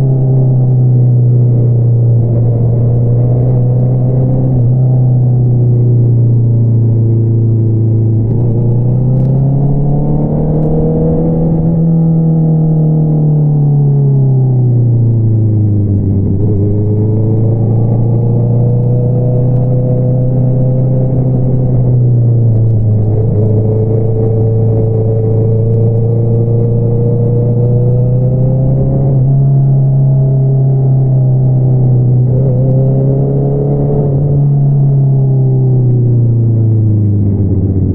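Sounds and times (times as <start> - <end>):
motorcycle engine running: 14.6 - 37.9.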